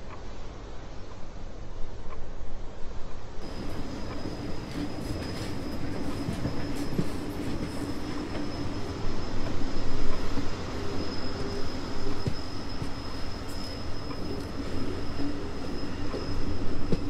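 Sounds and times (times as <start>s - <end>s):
moving train rumble: 0.0s - 17.0s
thin high whine: 3.4s - 17.0s.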